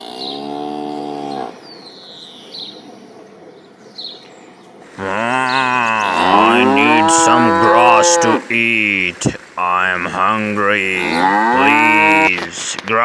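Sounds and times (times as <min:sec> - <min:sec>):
cartoon cow mooing: 0:04.9 - 0:12.6.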